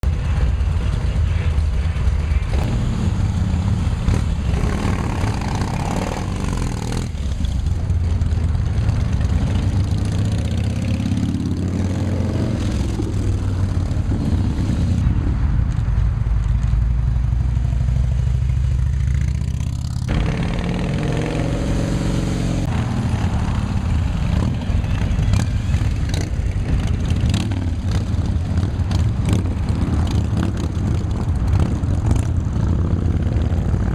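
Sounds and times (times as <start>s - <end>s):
motorcycles revving and passing: 0.0s - 33.9s.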